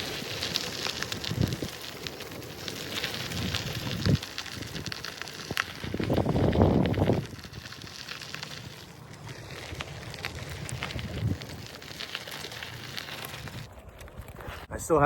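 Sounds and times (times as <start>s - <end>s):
crackling ticks: 0.0s - 14.4s
wind buffeting microphone: 0.2s - 1.9s, 2.7s - 8.2s, 9.4s - 11.8s.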